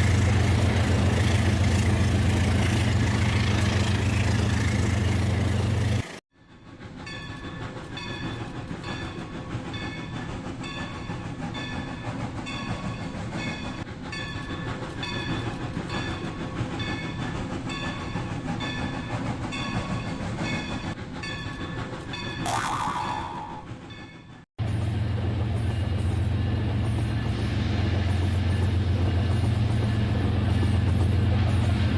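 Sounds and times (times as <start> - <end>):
short high tones: 22.5 - 23.8.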